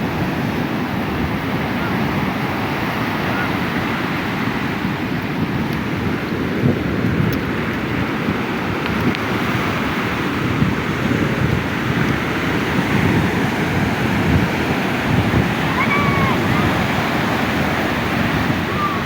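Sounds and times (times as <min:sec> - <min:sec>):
surf washing on a beach: 0:00.0 - 0:19.0
wind buffeting microphone: 0:00.0 - 0:19.0
faint distant cry: 0:15.6 - 0:17.4, 0:18.5 - 0:19.0.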